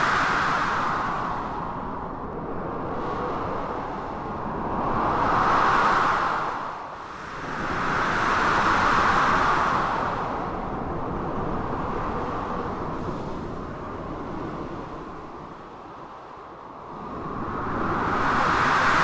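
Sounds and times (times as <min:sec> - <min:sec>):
blizzard wind: 0:00.0 - 0:19.0.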